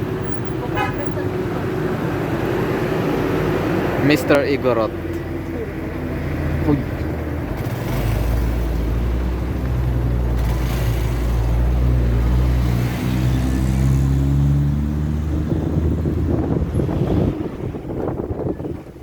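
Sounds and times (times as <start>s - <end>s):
motorcycle engine running: 0.0s - 19.0s
wind rushing over microphone: 11.2s - 19.0s.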